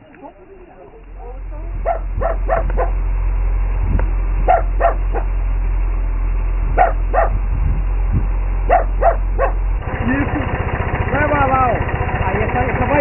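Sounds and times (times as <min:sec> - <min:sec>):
steady low rumble: 0:00.0 - 0:11.7
dog barking: 0:01.8 - 0:03.0, 0:04.4 - 0:05.4, 0:06.7 - 0:07.4, 0:08.7 - 0:09.6.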